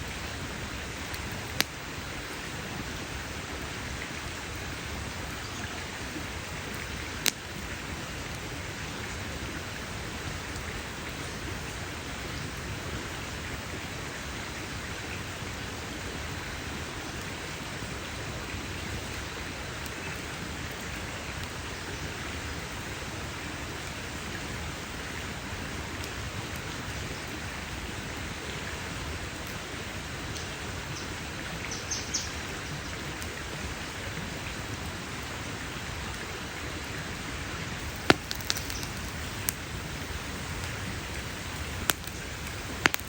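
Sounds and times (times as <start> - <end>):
campfire crackling: 0.0 - 43.0
sharp loud pop: 38.0 - 38.9.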